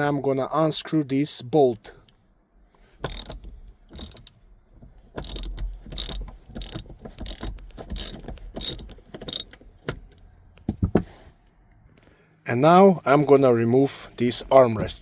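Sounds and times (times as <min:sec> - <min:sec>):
ratchet pawl clicks: 0:03.1 - 0:03.4, 0:04.0 - 0:04.3, 0:05.2 - 0:09.5.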